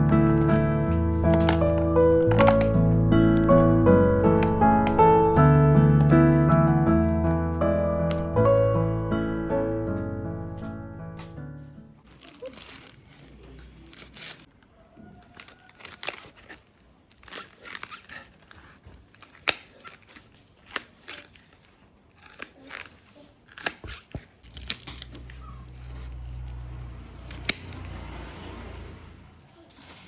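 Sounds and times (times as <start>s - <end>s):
packaging rustling and tearing: 1.0s - 3.8s, 12.1s - 14.6s, 15.2s - 26.6s.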